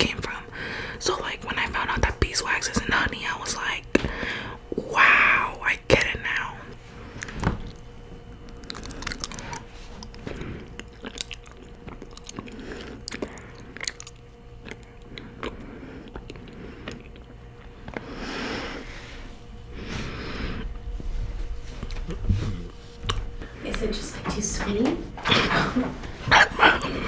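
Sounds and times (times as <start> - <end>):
chewing honeycomb: 6.0 - 21.0, 21.7 - 23.7.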